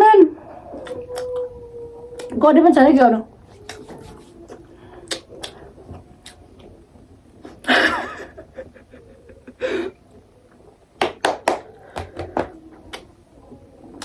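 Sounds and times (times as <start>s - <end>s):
mouth smacks and clicks while eating: 0.8s - 1.5s, 2.1s - 2.4s, 3.5s - 6.7s.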